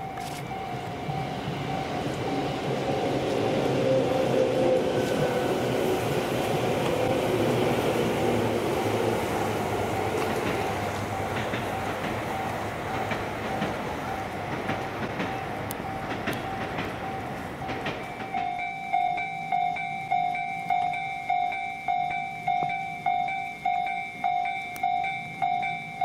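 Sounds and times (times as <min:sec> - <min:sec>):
level crossing warning bell: 0:00.0 - 0:05.4, 0:06.6 - 0:26.0
train running on tracks: 0:00.0 - 0:26.0.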